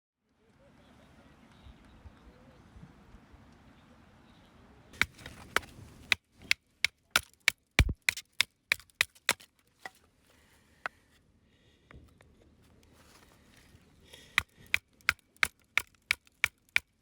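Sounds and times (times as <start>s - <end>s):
hatchet chopping firewood: 5.0s - 10.0s, 14.1s - 17.0s.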